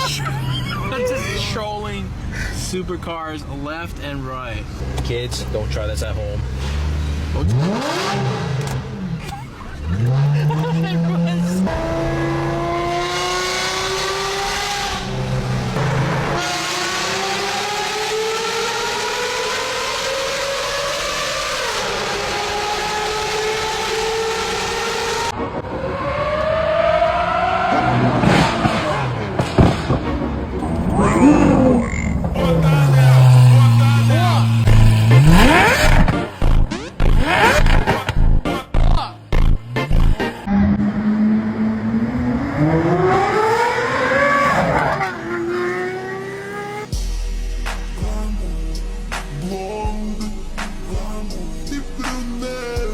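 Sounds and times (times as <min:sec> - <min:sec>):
engine accelerating hard: 0:04.6 - 0:47.0.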